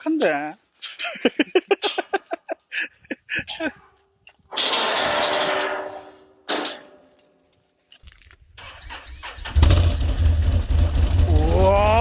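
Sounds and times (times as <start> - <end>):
vehicle engine starting: 8.6 - 12.0
engine running rumble: 8.8 - 12.0.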